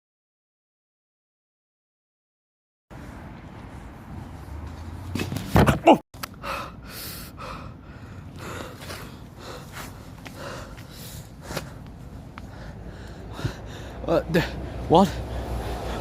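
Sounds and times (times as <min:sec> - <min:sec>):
person breathing hard: 0:06.3 - 0:16.0.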